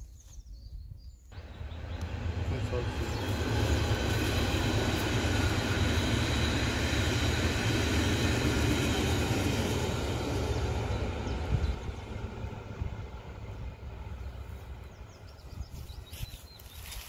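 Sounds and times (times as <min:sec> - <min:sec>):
low rumble of train wheels: 0:01.3 - 0:17.0
high whining tones: 0:01.4 - 0:14.7.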